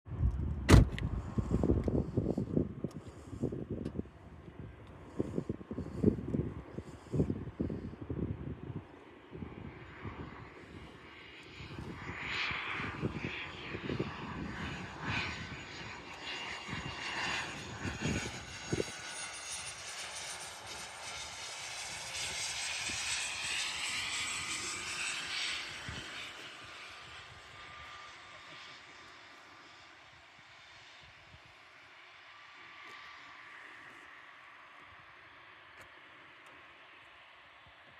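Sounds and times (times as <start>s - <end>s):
wind buffeting microphone: 0.1s - 28.6s
airliner engines roaring: 0.1s - 37.9s.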